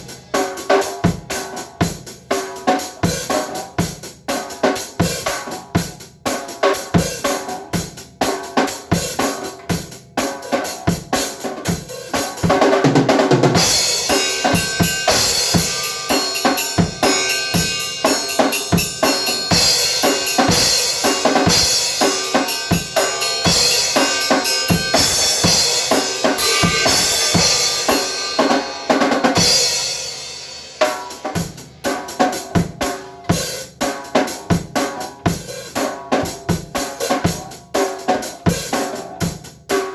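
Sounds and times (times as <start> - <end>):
drum hits: 12.2 - 30.2
cymbals ringing: 13.6 - 30.8.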